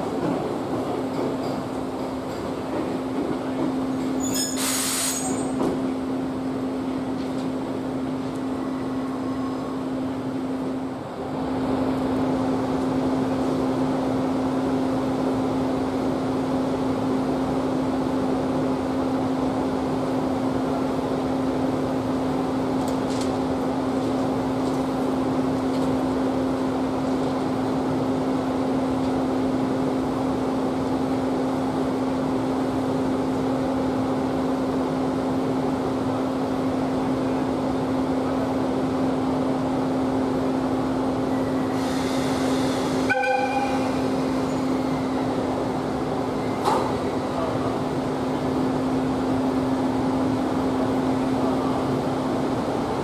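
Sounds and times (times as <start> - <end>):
sharp hiss of air: 4.4 - 5.4, 41.7 - 43.1
electric train humming: 26.1 - 53.0.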